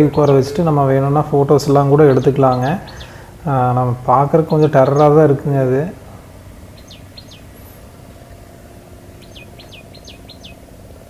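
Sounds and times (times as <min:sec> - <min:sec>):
bird chirps: 0:00.0 - 0:00.8, 0:01.7 - 0:05.4, 0:06.7 - 0:08.4, 0:09.0 - 0:10.8
low background hum: 0:00.0 - 0:11.0.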